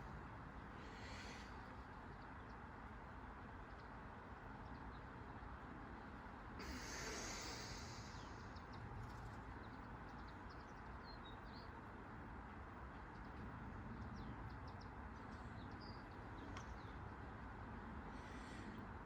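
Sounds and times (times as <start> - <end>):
rush of hiss: 6.6 - 8.5
faint bird chirps: 6.6 - 11.8.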